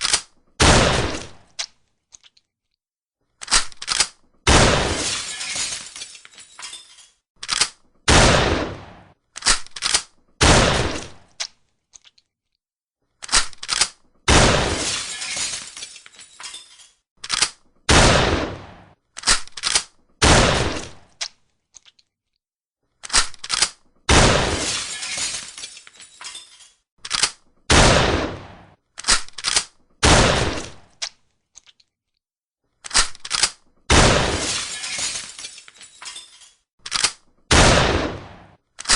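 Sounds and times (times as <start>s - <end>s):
shotgun shots: 0.6s - 1.4s, 4.5s - 5.0s, 8.1s - 9.2s, 10.4s - 11.2s, 14.3s - 14.8s, 17.9s - 19.0s, 20.2s - 21.1s, 24.1s - 24.7s, 27.7s - 28.8s, 30.0s - 30.8s, 33.9s - 34.5s, 37.5s - 38.6s.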